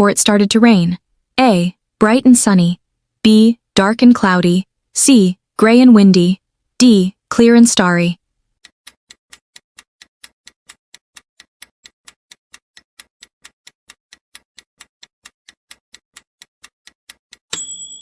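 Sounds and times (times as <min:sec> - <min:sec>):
clock ticking: 0:00.0 - 0:18.0
bright chime: 0:17.5 - 0:18.0.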